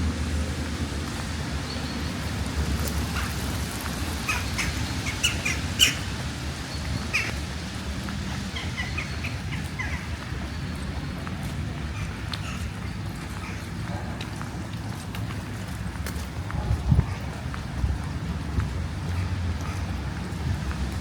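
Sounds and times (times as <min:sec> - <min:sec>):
rain: 0:00.0 - 0:21.0
small birds chirping: 0:04.2 - 0:07.4.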